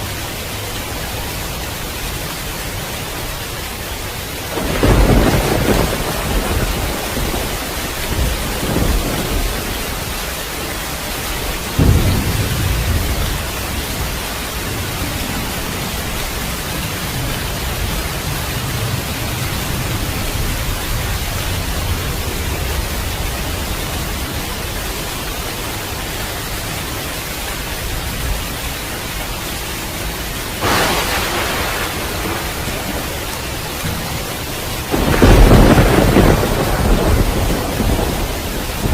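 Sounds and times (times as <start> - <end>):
steady rain: 0.0 - 38.9
thunder: 4.5 - 10.1, 11.7 - 16.7, 30.6 - 38.9.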